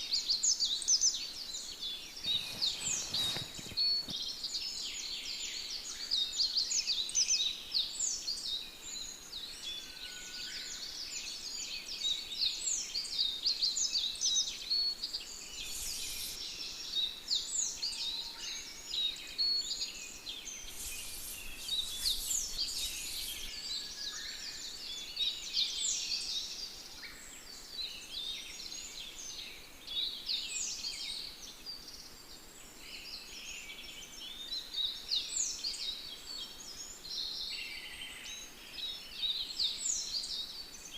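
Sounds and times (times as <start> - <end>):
chorus of small birds singing: 0.0 - 40.9
rustling: 2.2 - 4.3, 20.6 - 23.6.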